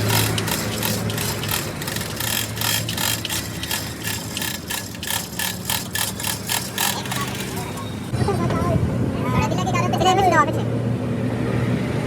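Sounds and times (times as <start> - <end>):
metallic clicks and rattling: 0.0 - 7.9.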